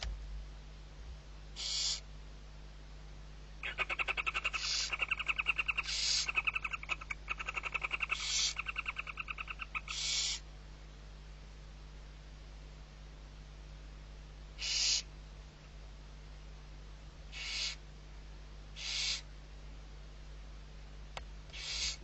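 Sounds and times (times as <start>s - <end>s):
owl chick chittering: 1.6s - 2.1s, 3.6s - 10.5s, 14.6s - 15.1s, 17.3s - 17.8s, 18.7s - 19.3s, 21.5s - 22.0s
owl chick hissing: 1.6s - 2.1s, 3.6s - 10.5s, 14.6s - 15.1s, 17.3s - 17.8s, 18.7s - 19.3s, 21.5s - 22.0s.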